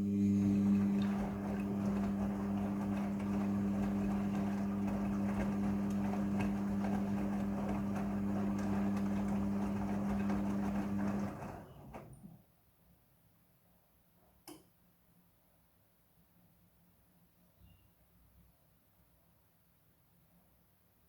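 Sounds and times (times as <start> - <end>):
washing machine humming: 0.0 - 12.4.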